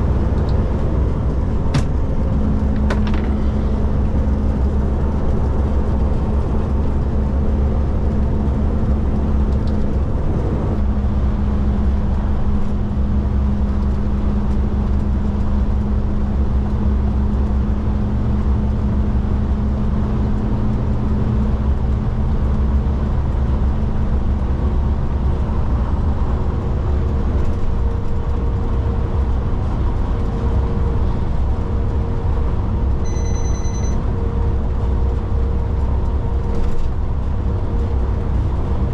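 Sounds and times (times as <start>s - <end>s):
road noise: 0.0s - 38.9s
truck diesel engine droning: 0.0s - 38.9s
short high beep: 33.0s - 34.0s.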